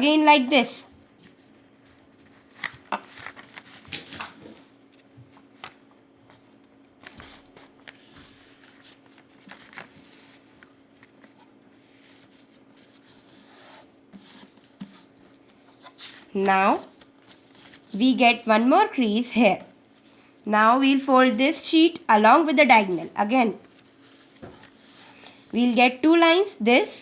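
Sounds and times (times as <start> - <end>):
paper rustling and crinkling: 1.1 - 18.7, 23.6 - 26.0.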